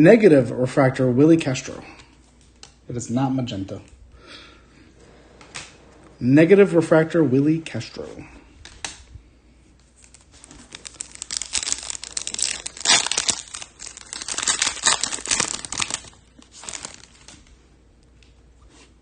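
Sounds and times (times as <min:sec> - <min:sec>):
foil wrapper tearing and crinkling: 0:10.0 - 0:17.4.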